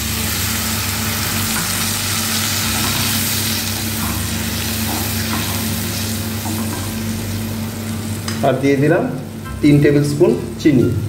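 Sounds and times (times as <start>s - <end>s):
pulp sizzling in hot oil: 0.0s - 8.6s
steady low hum: 0.0s - 11.0s.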